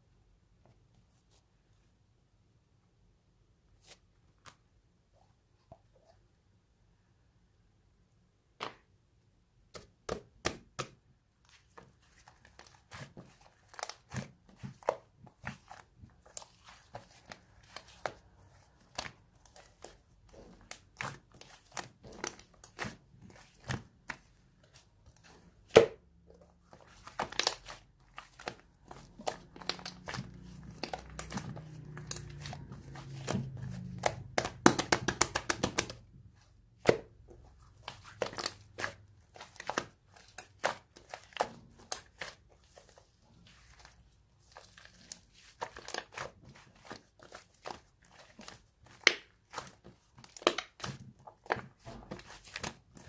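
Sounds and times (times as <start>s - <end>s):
slime squishing and crackling: 11.9s - 26.0s, 26.6s - 53.0s.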